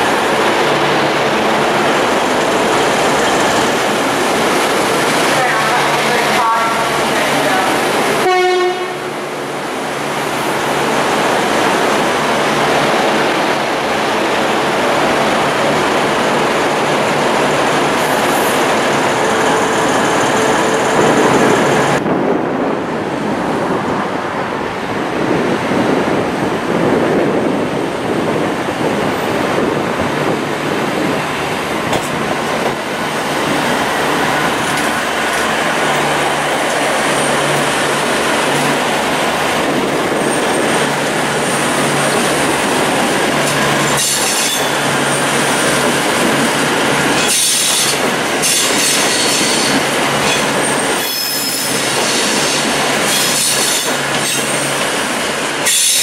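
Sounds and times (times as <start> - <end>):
approaching train rumble: 0.0 - 56.0
train wheel and engine rush: 0.0 - 56.0
train horn blast: 8.2 - 9.2.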